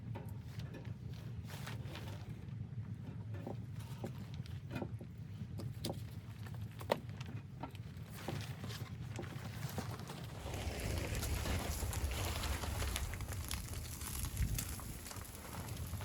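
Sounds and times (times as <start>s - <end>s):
footsteps crunching in snow: 9.7s - 16.0s.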